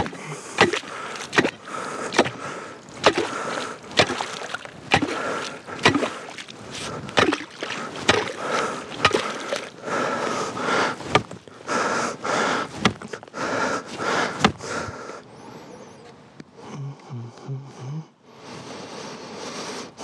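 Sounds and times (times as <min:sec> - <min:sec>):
ice chisel striking ice: 0:00.0 - 0:02.4, 0:03.0 - 0:03.4, 0:04.0 - 0:06.2, 0:07.2 - 0:08.4, 0:09.0 - 0:09.7.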